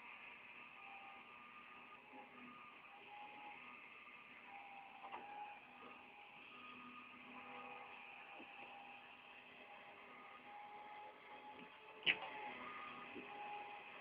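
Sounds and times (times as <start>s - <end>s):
small click: 12.0s - 12.4s.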